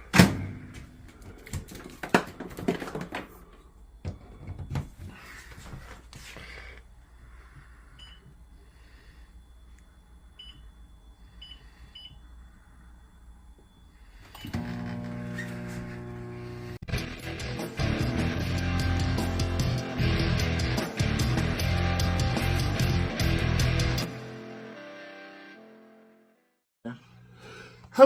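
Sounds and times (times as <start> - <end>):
microwave keypad beeps: 8.0 - 8.3, 10.4 - 10.8, 11.4 - 12.2.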